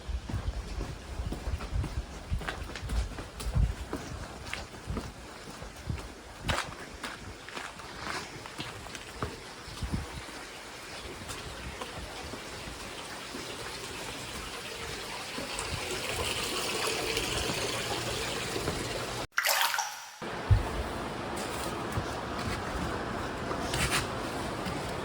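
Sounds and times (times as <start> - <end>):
water running into a bath: 9.4 - 20.6.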